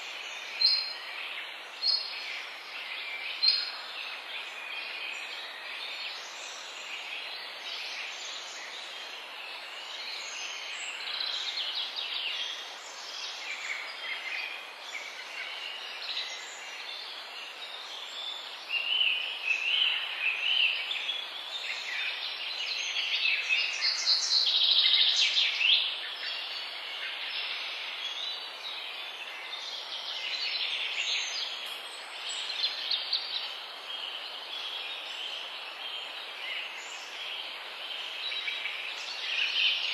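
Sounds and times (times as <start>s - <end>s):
birds singing and chirping: 0.0s - 39.9s
steady background hiss: 0.0s - 39.9s.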